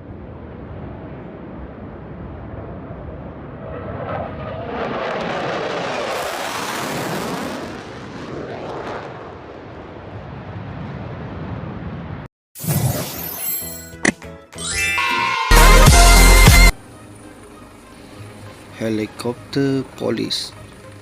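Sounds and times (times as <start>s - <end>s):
fighter jet flying past: 0.0s - 11.9s.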